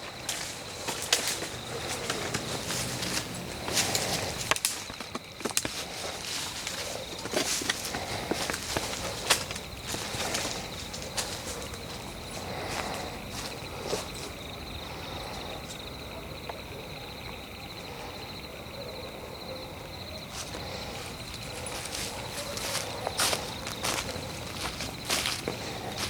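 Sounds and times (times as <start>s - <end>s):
footsteps on forest floor: 0.0s - 14.4s, 20.3s - 26.0s.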